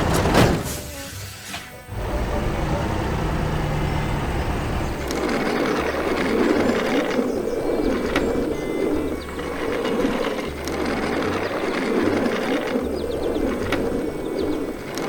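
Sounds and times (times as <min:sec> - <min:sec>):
heavy vehicle engine rumbling: 0:00.0 - 0:15.0.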